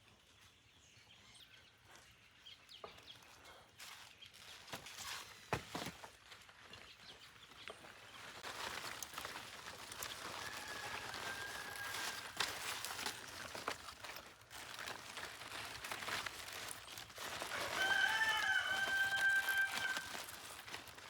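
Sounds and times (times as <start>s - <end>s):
rooster crowing: 10.1s - 12.6s, 17.4s - 20.4s.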